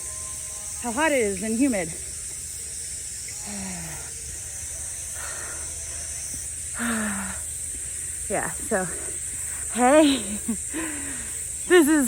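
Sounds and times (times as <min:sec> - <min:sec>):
cicadas buzzing: 0:00.0 - 0:12.0
person breathing heavily: 0:05.2 - 0:07.6, 0:10.6 - 0:11.5.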